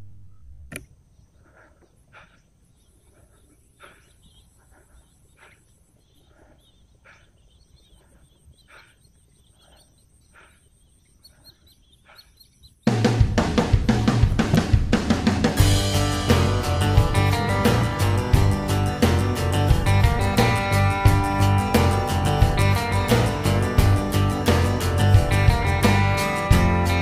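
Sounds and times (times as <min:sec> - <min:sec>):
bird calling: 0:01.1 - 0:14.7.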